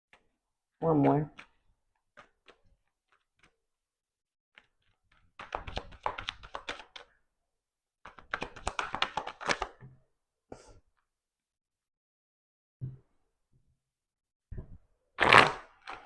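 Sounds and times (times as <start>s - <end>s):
cards being shuffled: 2.2s - 3.6s, 4.6s - 7.1s, 8.1s - 9.8s.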